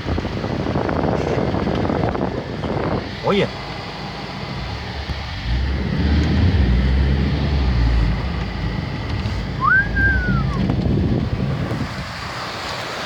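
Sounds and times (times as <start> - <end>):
low rumble: 0.3 - 12.4
heavy rain pouring: 2.5 - 13.0
rising and falling whistle: 9.6 - 10.7.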